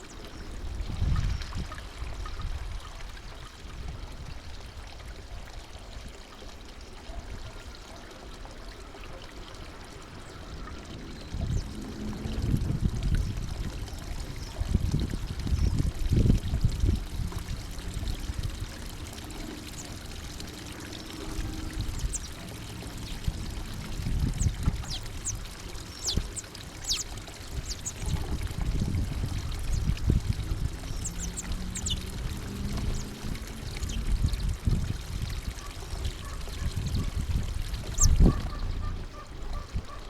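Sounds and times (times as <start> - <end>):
small birds calling: 19.0 - 28.4, 29.3 - 34.1, 37.8 - 40.0.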